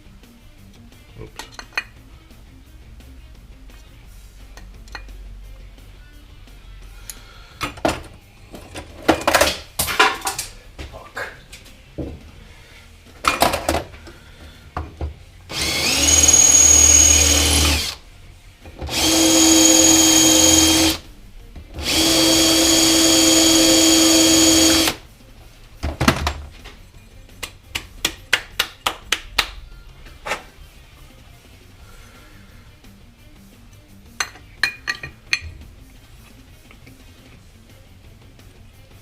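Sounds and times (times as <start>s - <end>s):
electric drill whining: 15.5s - 18.0s, 18.8s - 21.0s, 21.8s - 25.0s.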